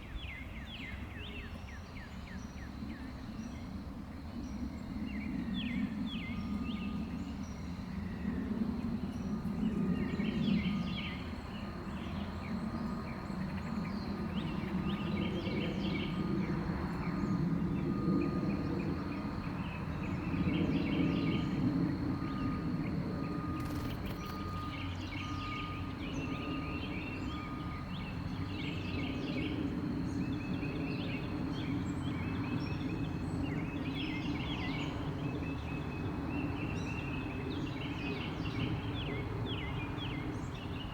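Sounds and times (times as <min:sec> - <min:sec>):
small birds chirping: 0:17.0 - 0:40.9.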